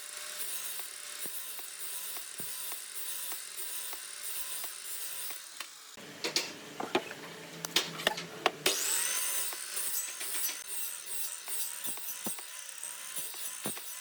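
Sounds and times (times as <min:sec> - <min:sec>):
sharp knocks and taps: 0:06.2 - 0:08.6.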